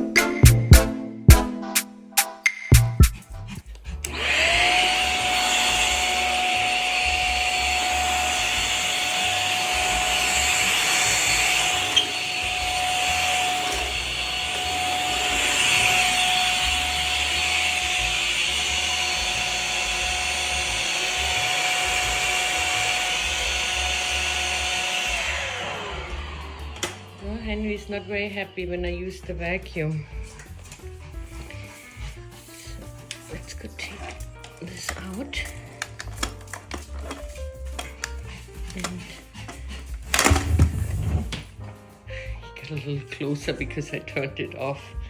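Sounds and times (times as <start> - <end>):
vacuum cleaner motor whine: 4.1 - 27.2, 34.8 - 41.4.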